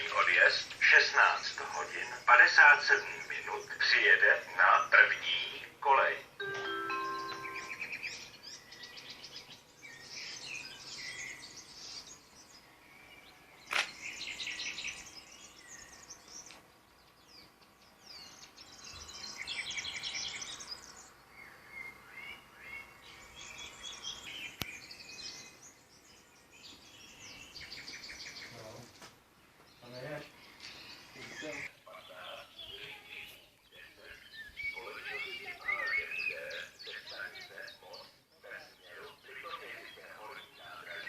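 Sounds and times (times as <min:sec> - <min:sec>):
songbirds singing: 0:00.0 - 0:41.0
sharp click: 0:13.7 - 0:14.0.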